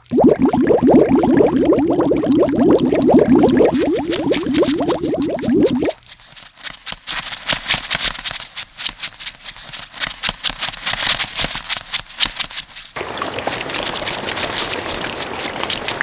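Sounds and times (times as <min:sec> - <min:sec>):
quick bubbling run: 0:00.0 - 0:06.0.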